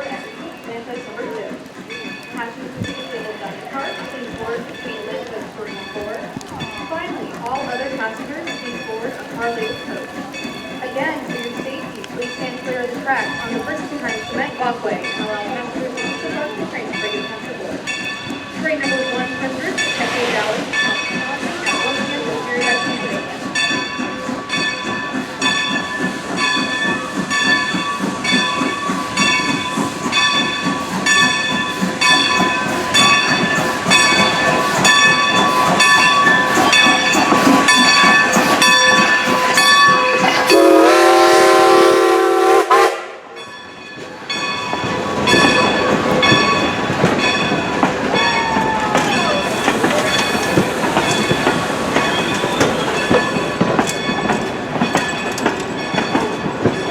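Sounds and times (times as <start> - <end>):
locomotive bell ringing: 0.0 - 56.9
moving train rumble: 0.0 - 56.9
steam whistle blast: 40.1 - 43.2.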